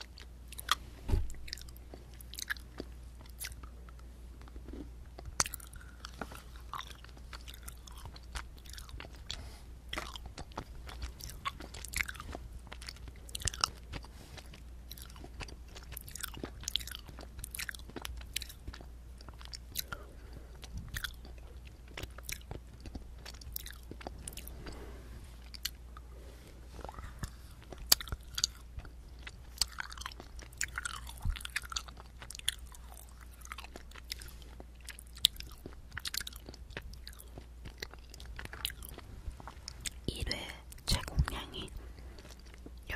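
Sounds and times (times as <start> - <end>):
chewing and biting: 0.0 - 24.8, 25.4 - 26.0, 26.7 - 42.9.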